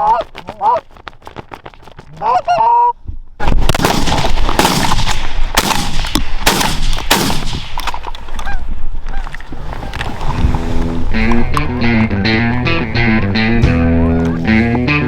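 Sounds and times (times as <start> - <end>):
geese honking: 2.2 - 2.9, 8.3 - 9.4, 10.7 - 15.0
shotgun shots: 3.4 - 8.0.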